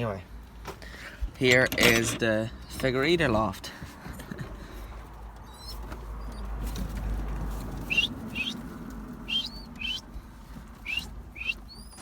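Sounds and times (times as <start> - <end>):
birds chirping: 5.4 - 12.0.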